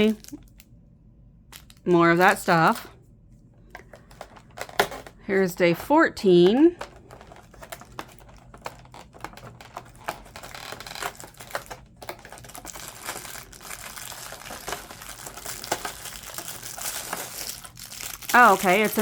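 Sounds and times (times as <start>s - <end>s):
packaging rustling: 1.5s - 2.9s, 3.7s - 5.2s, 6.8s - 19.0s.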